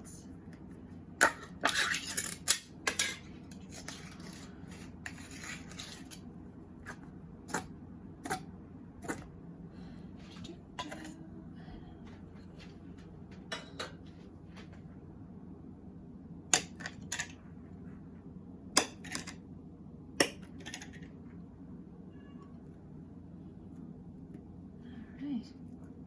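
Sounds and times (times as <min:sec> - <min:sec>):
clinks of dishes and utensils: 0:13.5 - 0:14.0.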